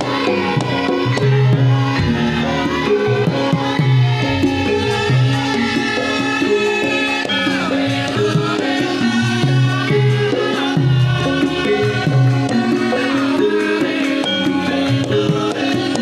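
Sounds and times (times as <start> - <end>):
gamelan music: 0.0 - 16.0
struck pitched notes: 1.7 - 8.3.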